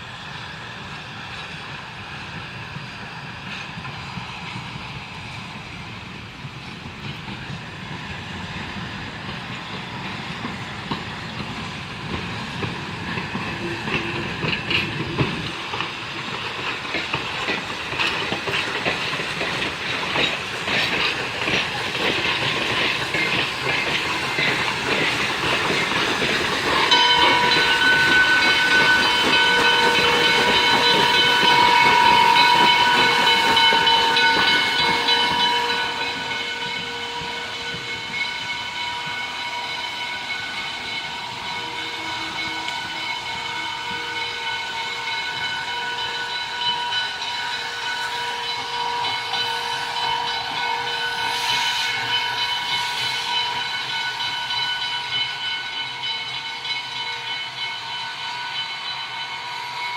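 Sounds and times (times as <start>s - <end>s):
steam hissing: 0.0s - 59.9s
locomotive wheels clattering: 8.8s - 57.7s
steam whistle blast: 26.7s - 54.6s.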